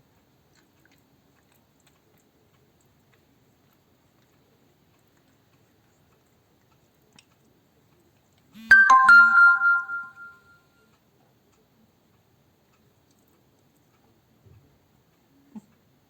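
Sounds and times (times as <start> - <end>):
electronic chime falling notes: 8.7 - 10.5.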